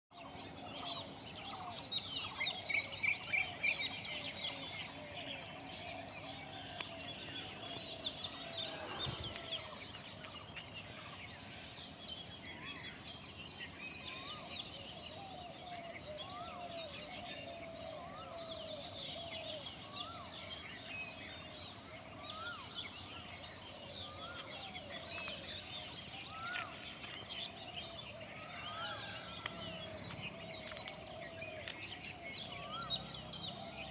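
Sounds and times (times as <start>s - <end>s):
low wavering bird calls: 0.7s - 10.2s
high bird chirps: 7.4s - 9.7s.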